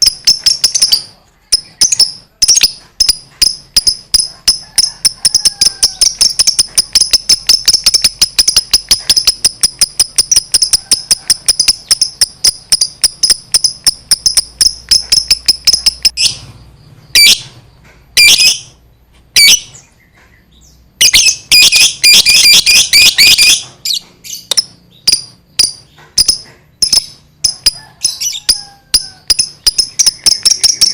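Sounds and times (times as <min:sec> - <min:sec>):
lovebird chattering: 0:00.0 - 0:16.5, 0:18.2 - 0:18.8, 0:21.0 - 0:30.9.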